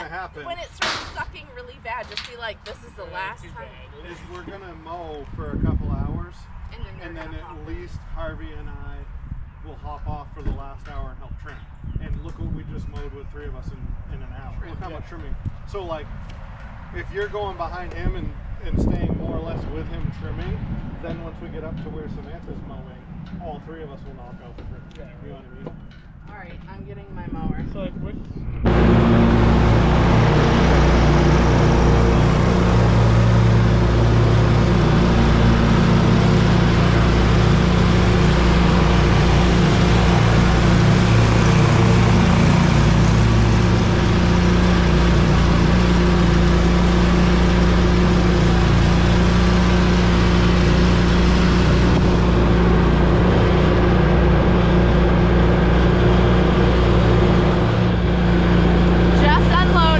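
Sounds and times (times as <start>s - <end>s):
riding lawn mower engine running: 28.4s - 59.9s.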